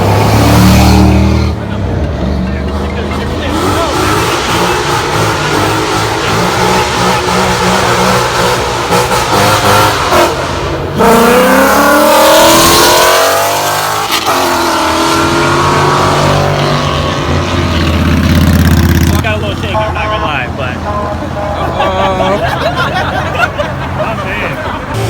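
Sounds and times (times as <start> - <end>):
car accelerating hard: 0.0 - 19.7
car engines rumbling: 0.0 - 25.0.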